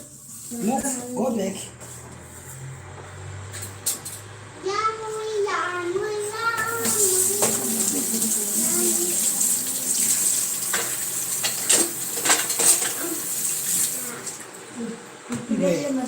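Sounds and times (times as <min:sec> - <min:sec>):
water rushing: 0:06.7 - 0:12.2.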